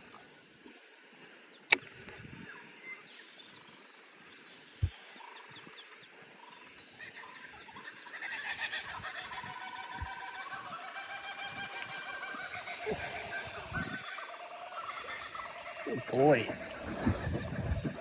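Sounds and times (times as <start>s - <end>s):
birds chattering: 2.4s - 18.0s.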